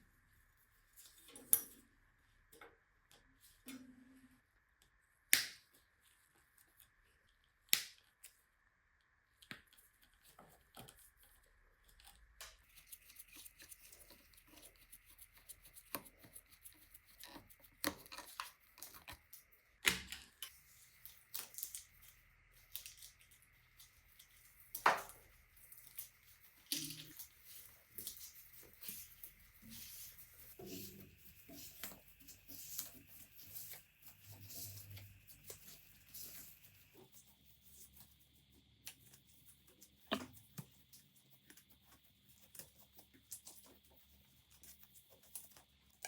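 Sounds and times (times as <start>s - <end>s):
rustling and scraping: 23.8s - 46.0s.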